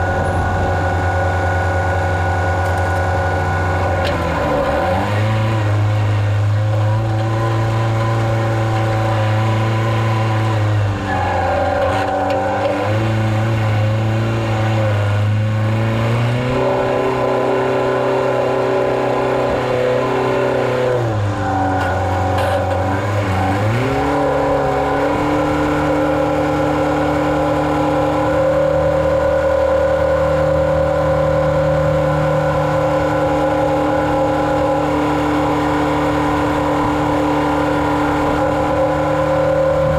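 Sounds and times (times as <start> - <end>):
farm vehicle engine running: 0.0 - 39.9.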